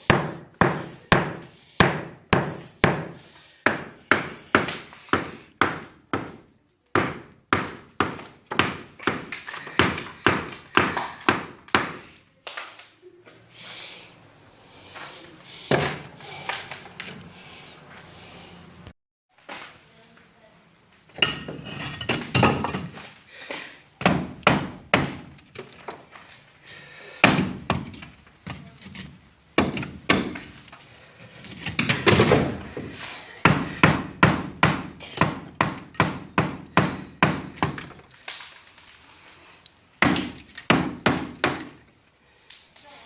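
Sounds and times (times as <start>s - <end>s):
hammer striking brick: 0.1s - 6.4s, 7.0s - 12.0s, 29.6s - 30.6s, 33.4s - 37.9s, 40.0s - 41.8s.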